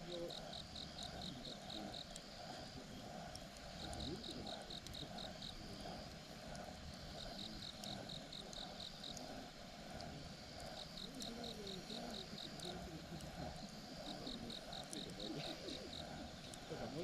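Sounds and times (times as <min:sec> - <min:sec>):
campfire crackling: 0:00.0 - 0:17.0
insect chirping: 0:00.0 - 0:17.0.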